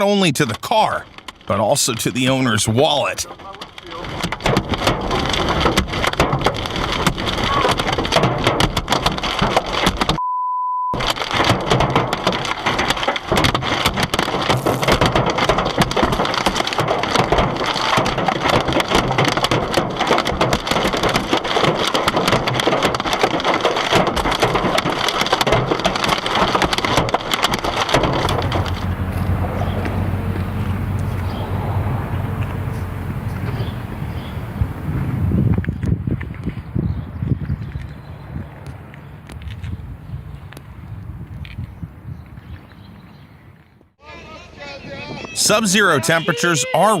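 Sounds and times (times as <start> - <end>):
hailstones pelting a car: 3.2 - 10.2, 11.0 - 35.6
censor bleep: 10.2 - 11.0.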